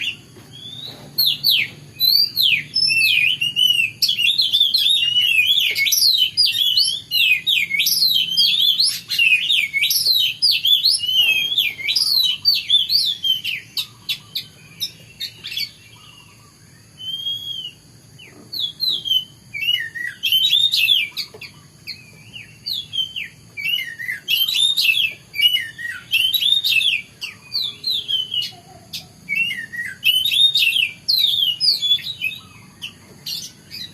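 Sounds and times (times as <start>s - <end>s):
bird singing whistled notes: 0.0s - 33.9s.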